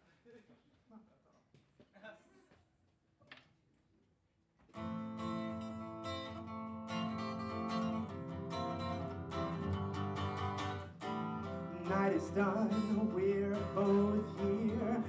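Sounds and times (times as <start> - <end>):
guitar strumming chords: 4.8 - 15.0.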